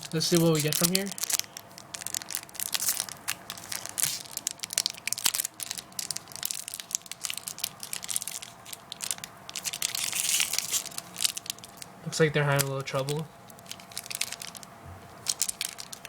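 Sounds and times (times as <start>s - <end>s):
foil wrapper crinkling: 0.0s - 16.0s.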